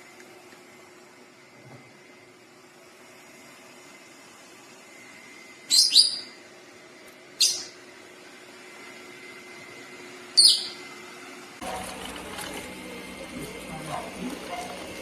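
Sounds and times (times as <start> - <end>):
bird chirping: 5.7 - 6.4, 7.4 - 7.8, 10.4 - 10.8.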